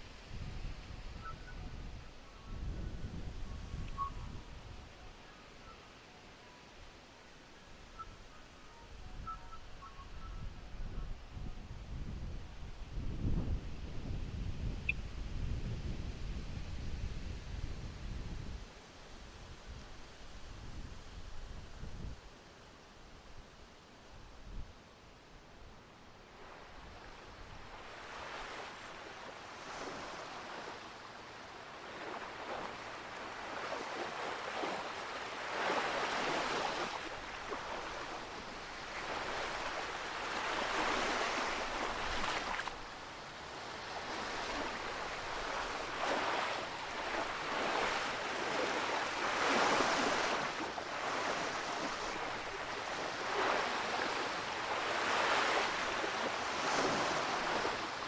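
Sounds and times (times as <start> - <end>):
surf breaking on shore: 26.4 - 58.0.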